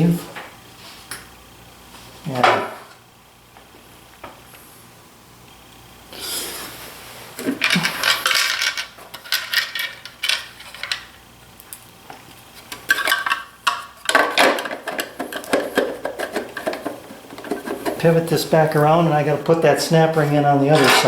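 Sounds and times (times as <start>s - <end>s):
metal parts and tools clinking: 7.6s - 11.0s, 20.7s - 21.0s.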